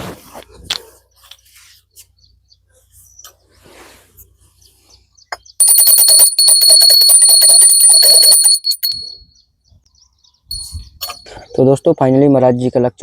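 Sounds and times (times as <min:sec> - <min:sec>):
small hand bell rung rapidly: 0:05.6 - 0:09.2, 0:10.5 - 0:11.3.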